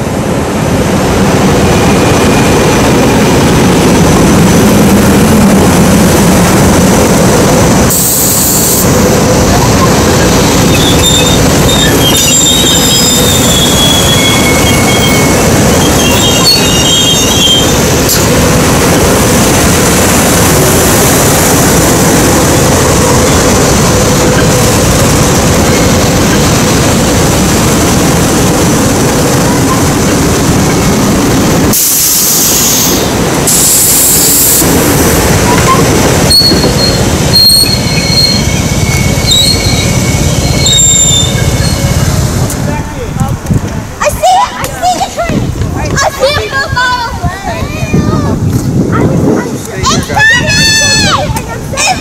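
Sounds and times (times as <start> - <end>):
train wheels rumbling on rail: 0.0 - 52.0
high-pitched wheel squeals: 10.6 - 17.8, 35.5 - 42.0.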